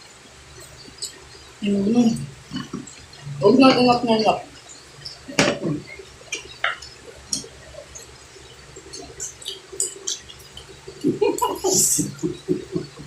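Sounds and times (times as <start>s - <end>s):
wet chewing smacks: 4.5s - 13.0s.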